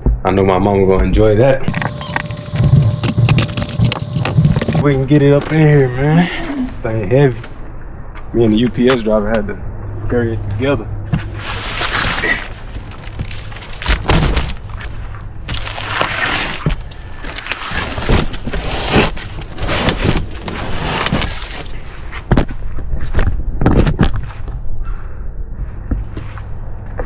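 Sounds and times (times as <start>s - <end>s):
scraping: 1.7s - 4.8s
heavy cardboard box dragged: 11.3s - 14.5s, 17.4s - 21.8s.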